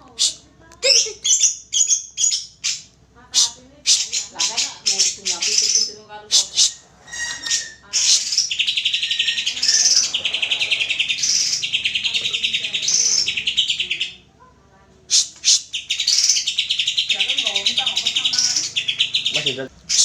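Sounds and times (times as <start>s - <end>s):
bird song buzzy trills: 0.2s - 14.3s, 15.1s - 20.0s
sharp bird calls: 0.2s - 14.3s, 15.1s - 20.0s
bird whistled notes: 6.5s - 11.7s.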